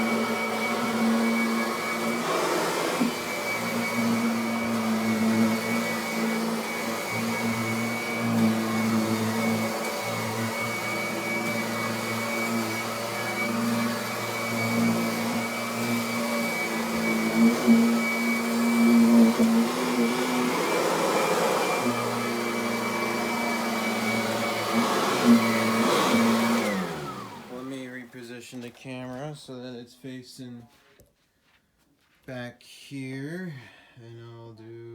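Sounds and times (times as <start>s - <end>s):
vacuum cleaner motor hum: 0.0s - 27.9s.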